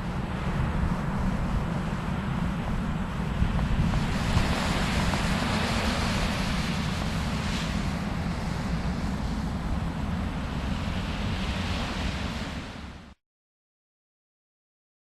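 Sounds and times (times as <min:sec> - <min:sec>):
wind rumble on microphone: 0:00.0 - 0:13.2
small surf washing on beach: 0:03.2 - 0:13.2.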